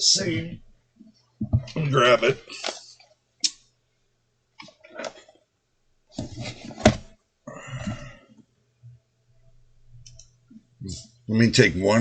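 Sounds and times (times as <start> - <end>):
man grunting and mumbling: 7.5 - 8.2.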